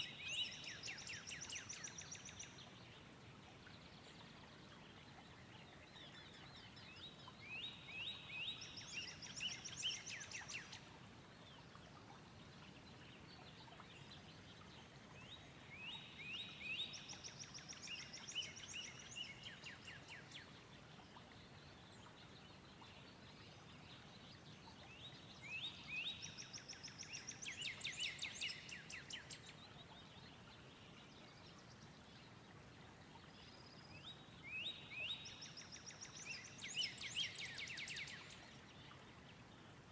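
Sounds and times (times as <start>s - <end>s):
faint background hiss: 0.0s - 39.9s
songbird singing trills: 5.7s - 10.8s, 33.5s - 39.0s.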